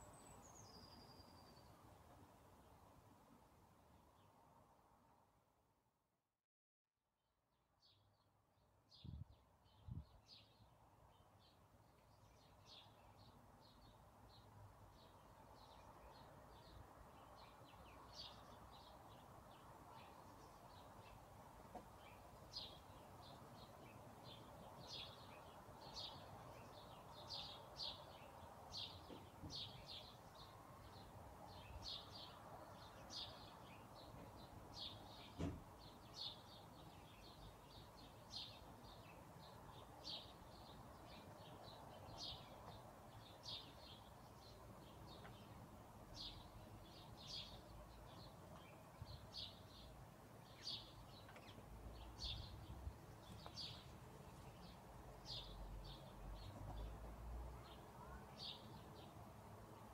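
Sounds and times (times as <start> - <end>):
songbirds chirping: 0.0 - 5.4, 7.7 - 59.9
faint background hiss: 0.0 - 5.5, 7.8 - 59.9.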